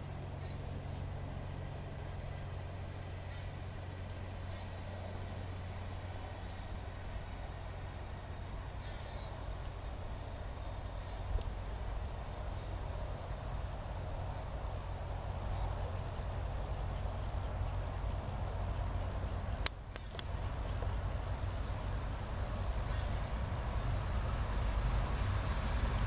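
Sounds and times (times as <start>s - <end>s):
freight train rumbling: 0.0s - 26.0s
sharp clicks: 19.6s - 20.4s.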